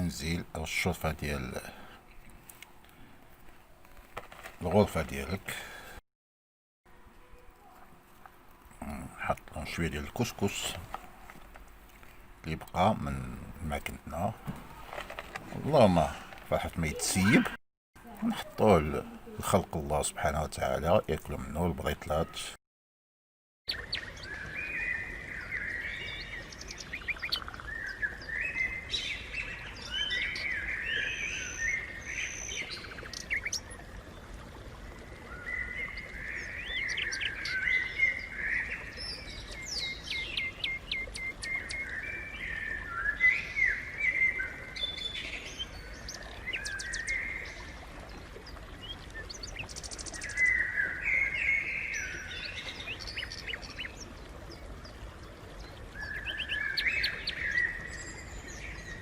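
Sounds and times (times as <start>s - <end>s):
sparrows chirping: 8.8s - 17.6s, 23.7s - 33.9s, 35.4s - 59.0s.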